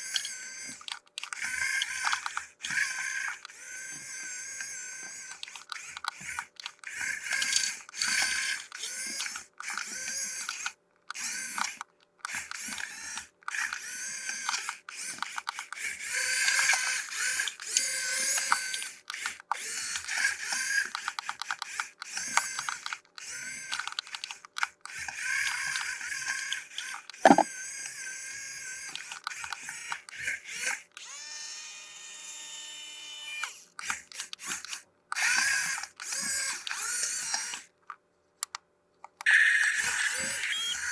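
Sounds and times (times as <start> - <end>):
sharp knock: 27.2 - 27.5.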